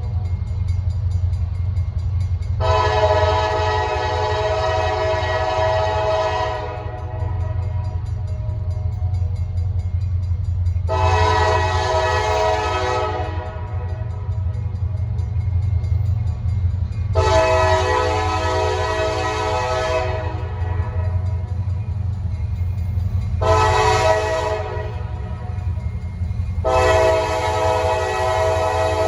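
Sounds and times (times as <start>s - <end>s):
locomotive engines rumbling: 0.0s - 29.0s
locomotive air horn blasts: 2.6s - 7.4s, 10.9s - 13.9s, 17.2s - 21.1s, 23.4s - 25.2s, 26.6s - 29.0s.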